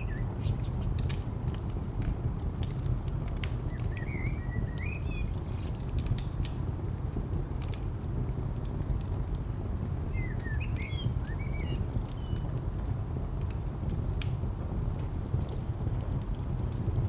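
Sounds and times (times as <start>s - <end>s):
birds chirping: 0.0s - 1.1s, 3.7s - 5.9s, 10.1s - 13.0s
distant traffic rumble: 0.0s - 17.0s
wood fire crackling: 0.0s - 17.0s.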